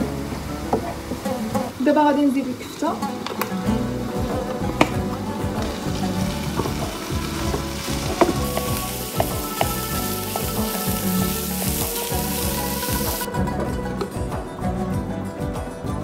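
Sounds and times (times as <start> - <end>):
meat sizzling in a frying pan: 5.5 - 13.3
wooden spoon scraping a pan: 5.6 - 13.3.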